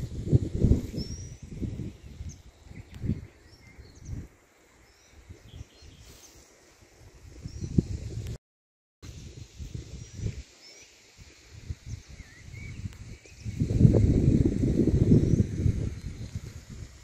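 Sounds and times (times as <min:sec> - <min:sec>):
small birds chirping: 0:00.8 - 0:06.6, 0:10.0 - 0:14.3.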